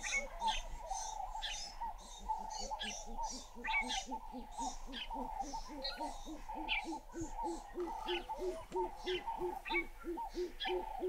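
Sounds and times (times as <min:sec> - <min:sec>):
higher bird chirps and trills: 0:00.0 - 0:11.0
bird hooting notes: 0:02.8 - 0:11.0.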